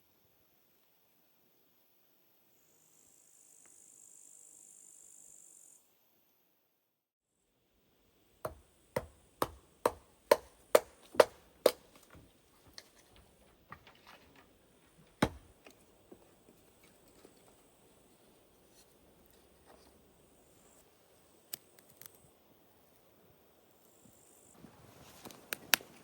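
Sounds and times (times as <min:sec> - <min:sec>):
sharp chopping strikes on wood: 0:08.5 - 0:12.8, 0:15.1 - 0:15.7.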